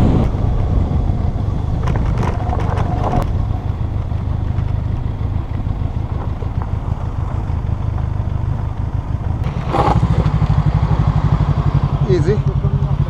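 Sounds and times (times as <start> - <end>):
rush of noise: 0.0 - 4.2
motorcycle engine running: 0.0 - 13.0.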